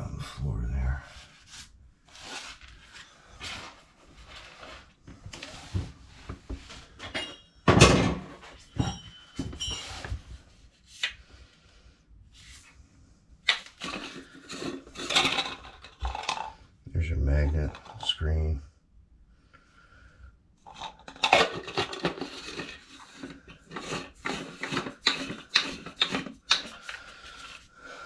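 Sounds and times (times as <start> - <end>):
metal tools knocking and rustling: 7.0 - 10.1, 13.8 - 16.5, 20.7 - 26.8.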